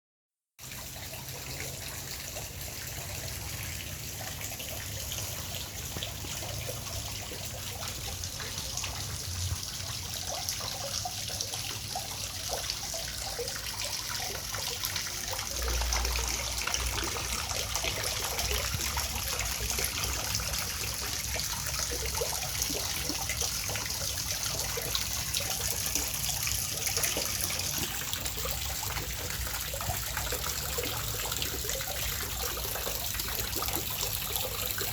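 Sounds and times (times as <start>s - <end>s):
water bubbling gurgles: 0.6s - 34.9s
water trickling and splashing: 0.6s - 34.9s.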